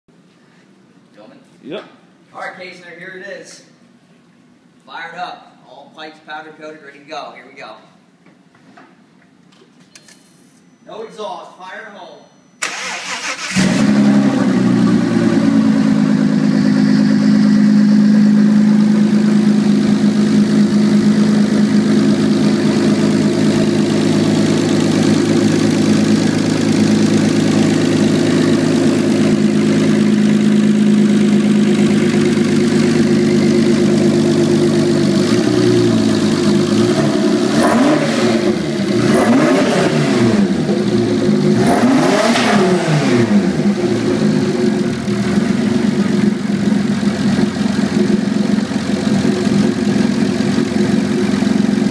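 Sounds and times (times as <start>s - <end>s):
car engine idling loudly: 13.6s - 37.5s, 43.1s - 51.9s.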